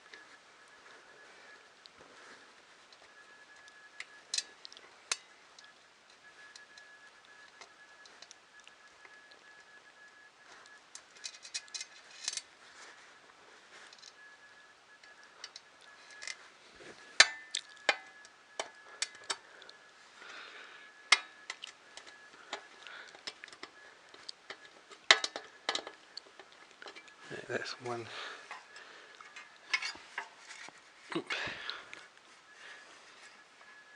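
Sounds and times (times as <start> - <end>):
clicks and clinks of tools: 21.1 - 27.2.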